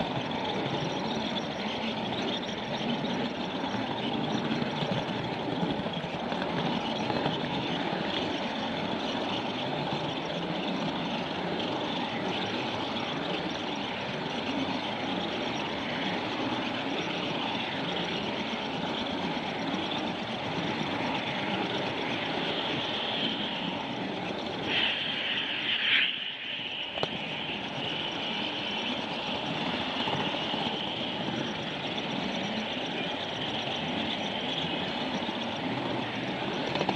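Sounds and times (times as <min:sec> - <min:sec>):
train rumble and rail noise: 0:00.0 - 0:36.9
loud hiss: 0:24.7 - 0:27.4.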